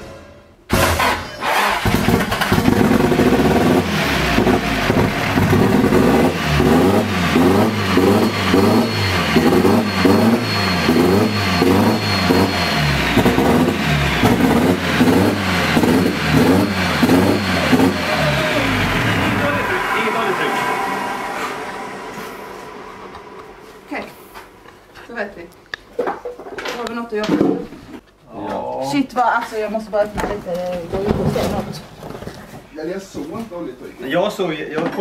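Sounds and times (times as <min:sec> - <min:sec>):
car engine running roughly: 0:00.7 - 0:23.6
thin high whine: 0:07.7 - 0:14.5, 0:16.0 - 0:25.4.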